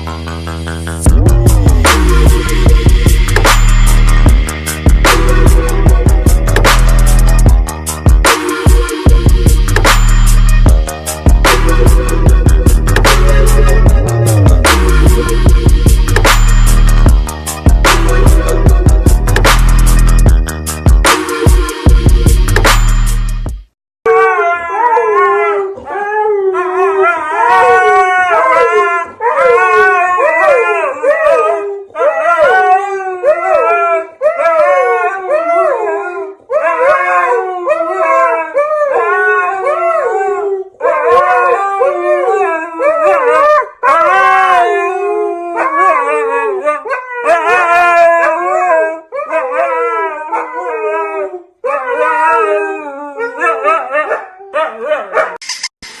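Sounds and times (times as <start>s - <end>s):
dog howling: 24.1s - 55.4s.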